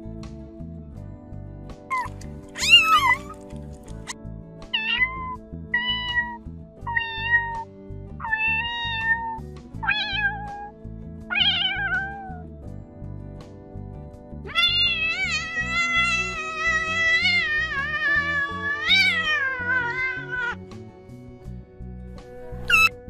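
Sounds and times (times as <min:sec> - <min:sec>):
background music: 0:00.0 - 0:23.0
kitten mewing: 0:01.9 - 0:03.4, 0:08.2 - 0:10.7, 0:11.3 - 0:12.4, 0:14.5 - 0:20.6, 0:22.5 - 0:22.9.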